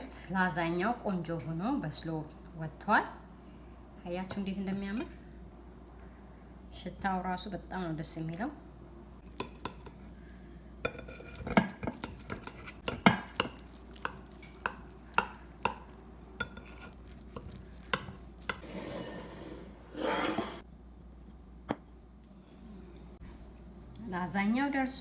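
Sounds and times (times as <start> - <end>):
utensil scraping dish: 16.4 - 20.6.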